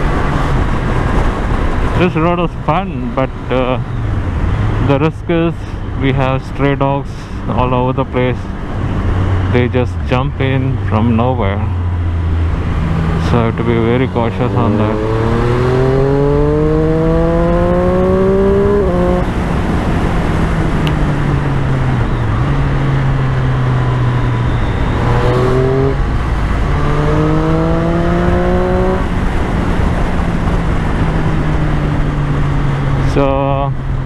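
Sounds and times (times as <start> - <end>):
wind and road noise: 0.0 - 34.0
motorcycle engine revving: 7.6 - 34.0.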